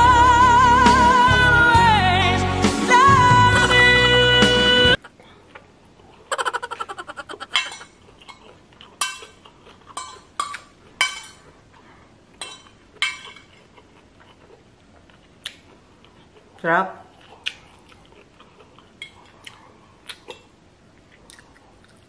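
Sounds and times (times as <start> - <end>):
background music with singing: 0.0 - 5.0
fork clinking on a plate: 7.5 - 8.4, 9.0 - 11.5.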